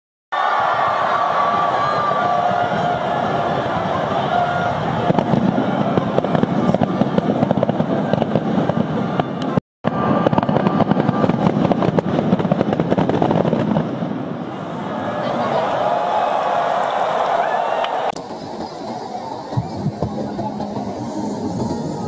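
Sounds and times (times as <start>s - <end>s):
fireworks crackling bangs: 1.5s - 14.6s, 18.1s - 22.0s.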